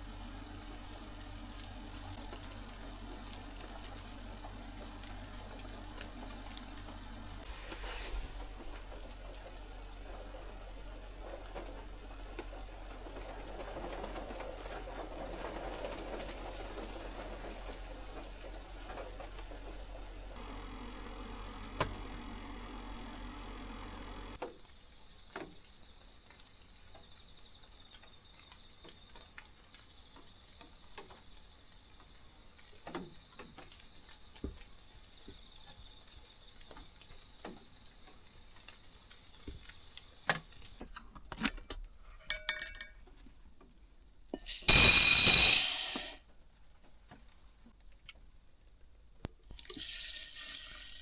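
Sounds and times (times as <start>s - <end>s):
small objects clicking: 44.4s - 46.2s, 49.5s - 51.0s.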